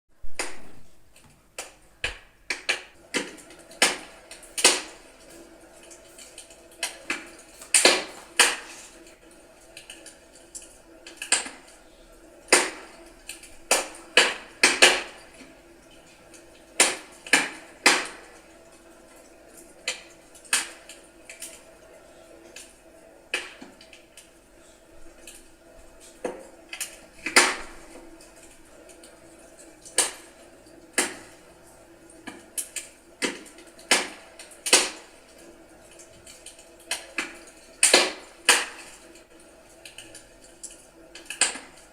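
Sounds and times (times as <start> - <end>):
wood fire crackling: 0.2 - 41.9
firewood popping: 0.4 - 9.2.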